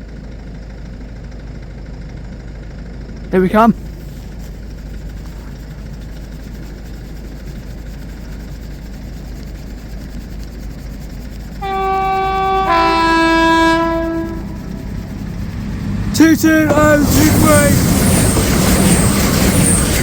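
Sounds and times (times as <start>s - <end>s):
steady low rumble: 3.8s - 20.0s
two-tone train horn: 11.6s - 17.4s.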